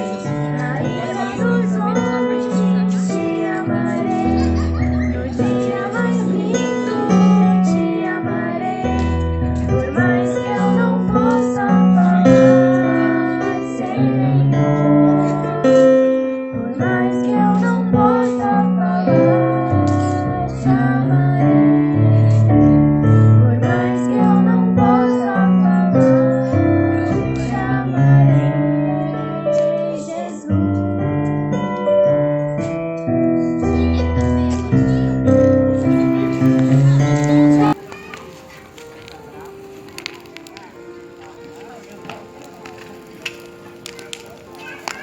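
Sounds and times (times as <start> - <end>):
girl singing: 0.0 - 30.9, 33.8 - 38.1
slow electric piano song: 0.0 - 45.0.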